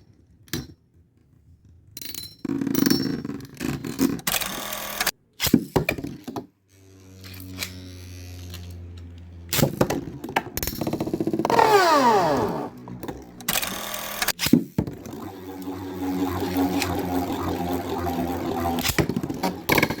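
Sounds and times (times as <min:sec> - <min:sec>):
spinning tops whirring: 0:06.8 - 0:20.0
spinning tops clacking: 0:12.8 - 0:20.0.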